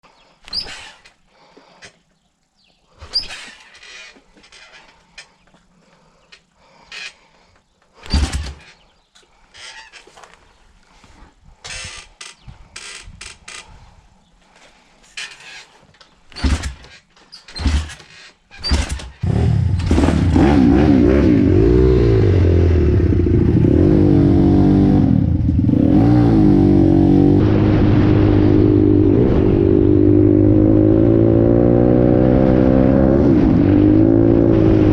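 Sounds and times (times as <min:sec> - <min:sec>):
knocks and clatter: 0:16.4 - 0:19.2
pit bike engine revving: 0:18.6 - 0:34.9.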